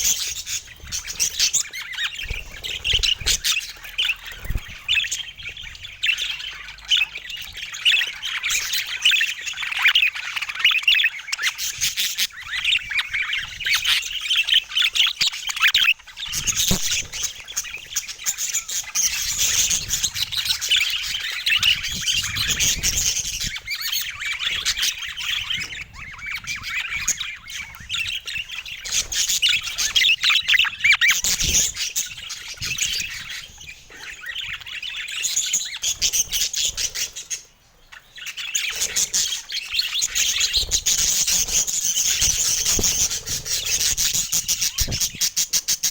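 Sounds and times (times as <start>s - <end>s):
budgerigars chattering: 0.0s - 45.9s.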